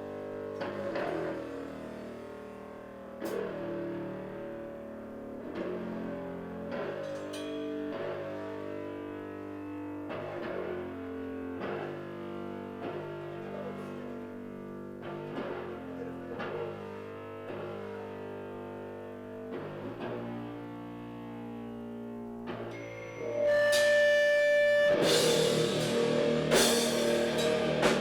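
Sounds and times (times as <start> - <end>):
guitar ringing chords: 22.5 - 28.0.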